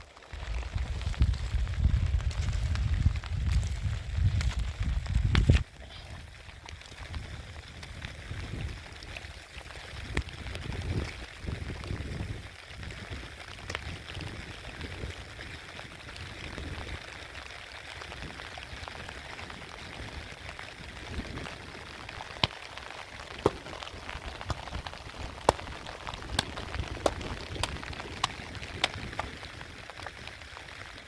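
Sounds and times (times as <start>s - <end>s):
steady rain hissing: 0.0s - 31.0s.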